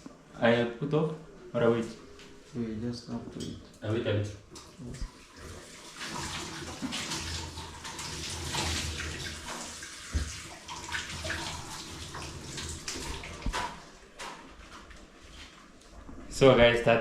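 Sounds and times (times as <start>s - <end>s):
water running and splashing: 4.6s - 15.8s.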